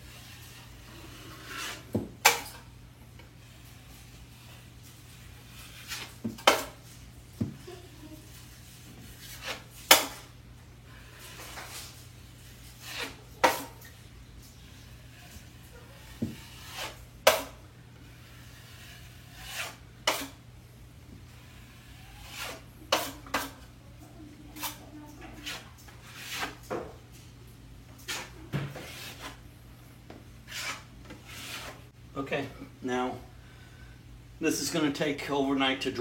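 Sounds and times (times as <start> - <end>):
drywall knife scraping compound: 0.0 - 2.6, 3.4 - 14.0, 14.6 - 20.4, 21.4 - 23.7, 25.4 - 26.9, 28.0 - 29.4, 30.4 - 31.9.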